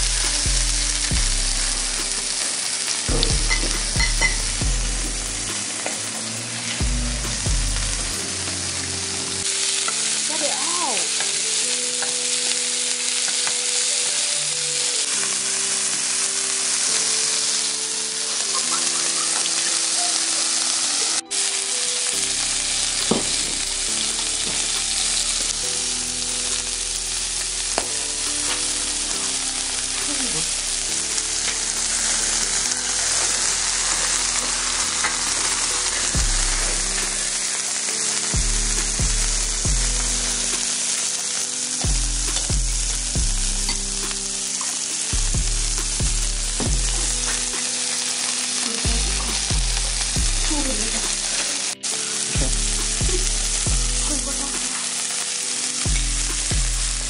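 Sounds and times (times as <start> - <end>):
food sizzling in a pan: 0.0 - 57.0.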